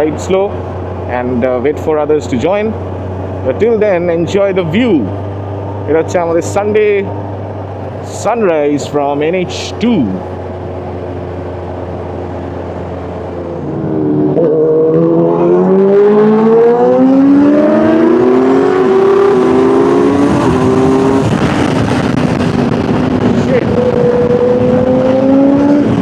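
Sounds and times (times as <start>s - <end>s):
wind and road noise: 0.0s - 26.0s
motorcycle engine revving: 10.2s - 26.0s.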